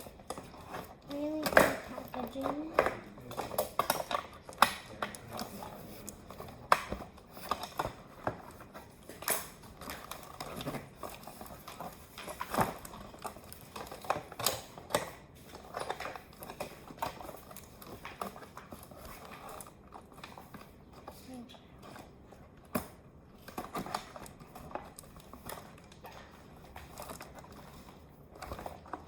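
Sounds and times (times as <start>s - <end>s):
plastic toy pieces clicking: 0.0s - 21.2s.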